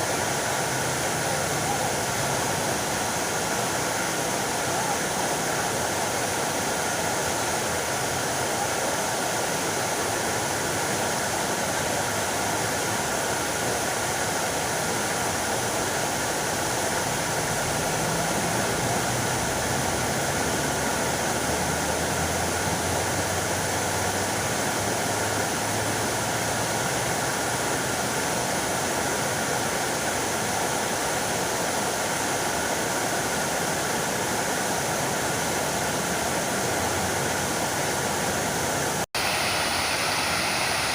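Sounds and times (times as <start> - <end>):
fountain water splashing: 0.0 - 40.9.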